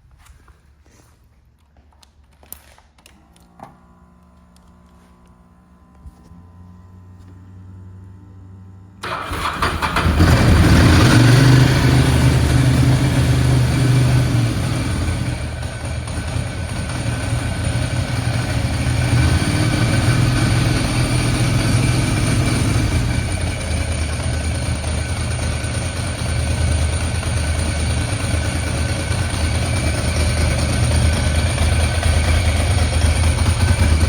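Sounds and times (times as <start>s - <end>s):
motorcycle engine idling: 9.0s - 34.0s.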